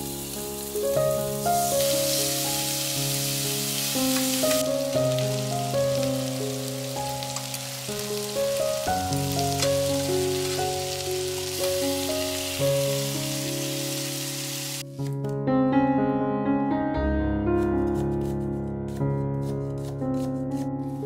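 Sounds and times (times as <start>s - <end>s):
chicken sizzling in oil: 0.0s - 14.9s
background music: 0.0s - 16.0s.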